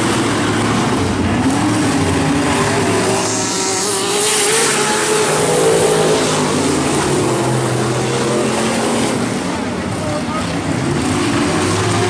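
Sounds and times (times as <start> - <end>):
truck engines at full throttle: 0.0 - 12.0.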